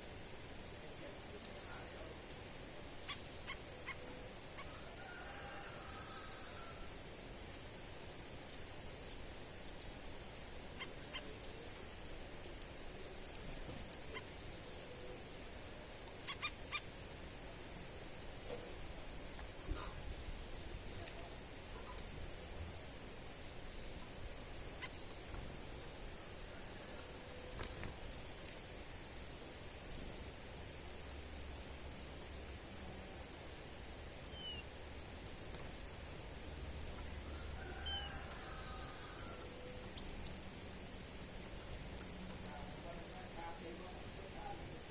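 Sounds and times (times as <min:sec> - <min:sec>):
steady background hiss: 0:00.0 - 0:44.9
bird chirping high-pitched: 0:02.9 - 0:04.9, 0:16.2 - 0:16.9, 0:33.9 - 0:34.7.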